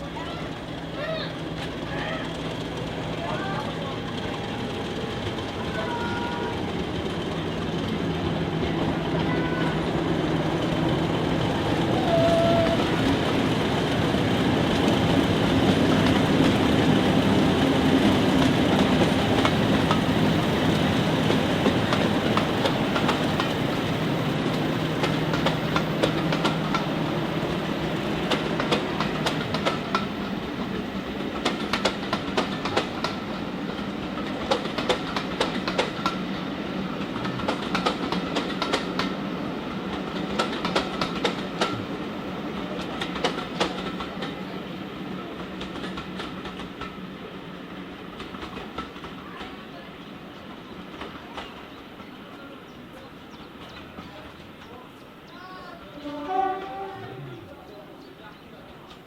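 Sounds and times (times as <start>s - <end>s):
train rumbling on rails: 0.0s - 59.0s
rail-joint clicks: 0.6s - 5.8s, 6.7s - 36.4s, 37.0s - 39.2s, 39.9s - 41.9s, 42.5s - 44.5s, 45.4s - 47.1s, 48.1s - 49.6s, 58.7s - 59.0s.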